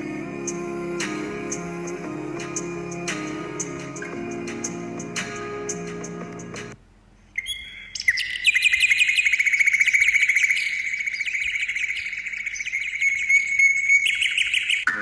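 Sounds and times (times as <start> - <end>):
bird trilling: 7.3 - 15.0.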